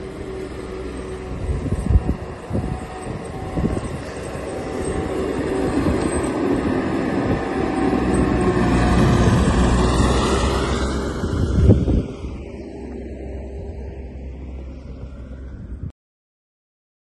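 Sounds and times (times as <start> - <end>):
engine revving: 0.0 - 15.7.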